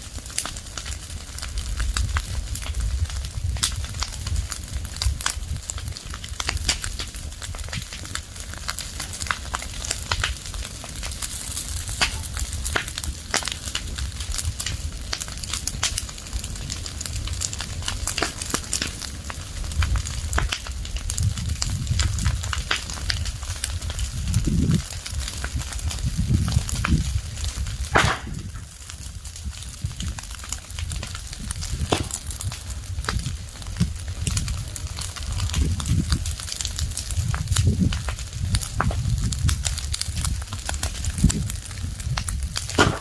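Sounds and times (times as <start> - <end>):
fire crackling: 0.0 - 43.0
sharp pops and snaps: 31.7 - 33.3.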